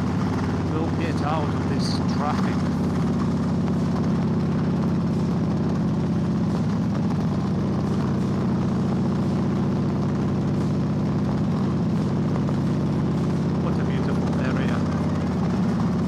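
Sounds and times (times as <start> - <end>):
motorcycle engine running steadily: 0.0 - 16.0.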